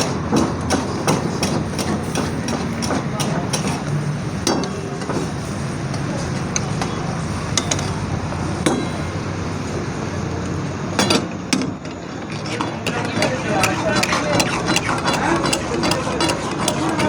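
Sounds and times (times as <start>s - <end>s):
traffic and engine hum: 0.0s - 17.0s
sharp metal knocks and clinks: 7.5s - 8.0s.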